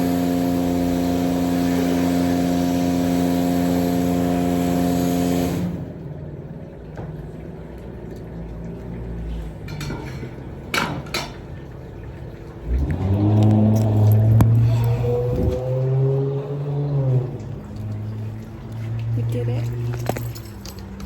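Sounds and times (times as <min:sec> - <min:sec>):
water spray hissing: 0:00.0 - 0:05.9
pressure-washer pump running: 0:00.0 - 0:09.9, 0:10.6 - 0:21.0
light clinks and knocks: 0:19.6 - 0:21.0.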